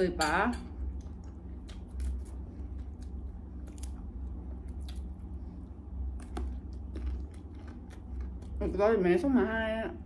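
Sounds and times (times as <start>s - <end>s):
person chewing and biting: 1.0s - 5.3s, 6.1s - 8.6s.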